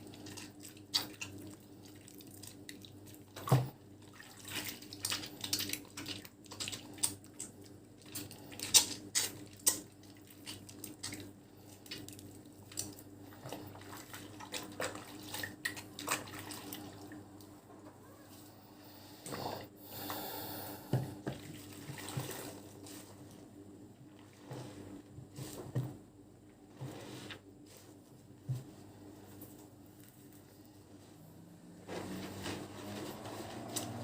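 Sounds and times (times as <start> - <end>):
soap lathering squelch: 0.0 - 17.5, 21.2 - 23.4.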